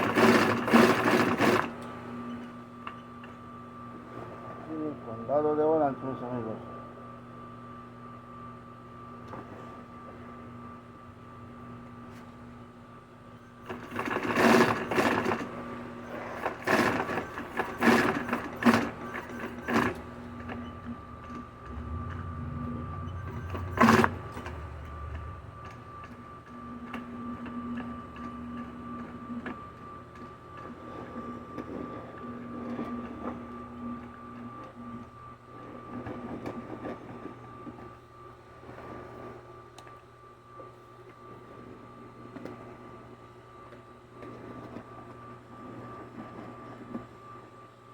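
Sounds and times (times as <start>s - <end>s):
industrial sewing machine stitching: 0.0s - 1.9s, 13.6s - 26.2s.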